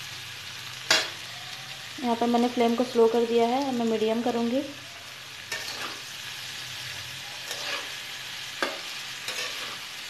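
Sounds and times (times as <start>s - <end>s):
vegetables sizzling in pan: 0.0s - 10.0s
metal spatula scraping pan: 5.4s - 10.0s.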